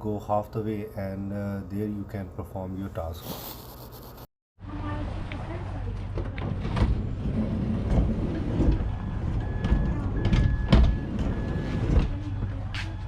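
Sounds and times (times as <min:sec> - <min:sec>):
beeping tone: 0:08.8 - 0:13.0.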